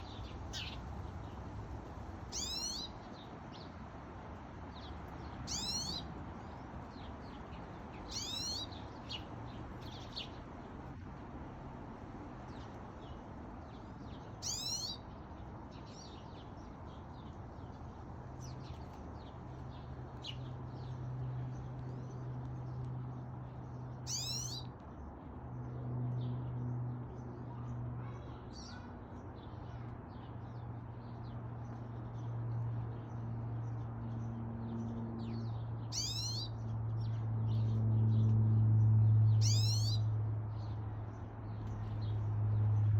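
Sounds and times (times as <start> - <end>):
finches calling: 2.3 - 2.9, 5.5 - 6.1, 8.1 - 8.7, 14.4 - 15.0, 24.1 - 24.6, 35.9 - 36.5, 39.4 - 40.0
soft bird chirps: 2.3 - 3.7, 5.4 - 10.4, 12.5 - 17.8, 18.4 - 24.9, 35.2 - 38.3, 39.3 - 40.7.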